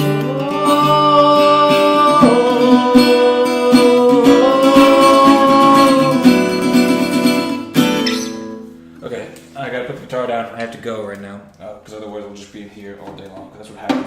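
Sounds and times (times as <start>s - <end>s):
person singing wordless melody: 0.0s - 7.6s
acoustic guitar strumming: 0.0s - 9.0s.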